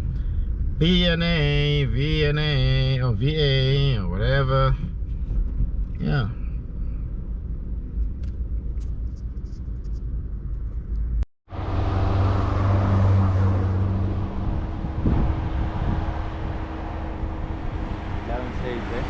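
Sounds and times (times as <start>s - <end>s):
car engine and road rumble: 0.0s - 19.0s
low hum: 0.0s - 19.0s.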